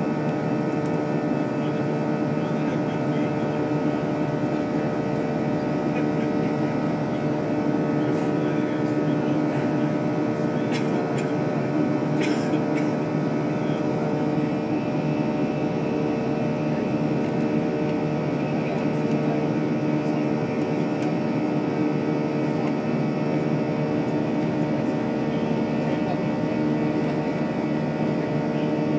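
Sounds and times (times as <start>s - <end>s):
jet engine drone: 0.0s - 28.9s.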